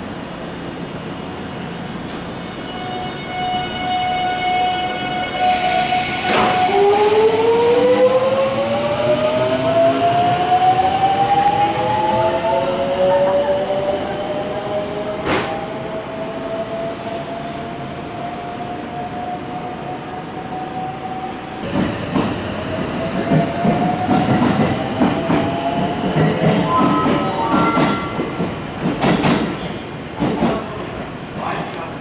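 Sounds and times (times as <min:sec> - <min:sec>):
wheels clattering on rails: 0:21.6 - 0:31.6.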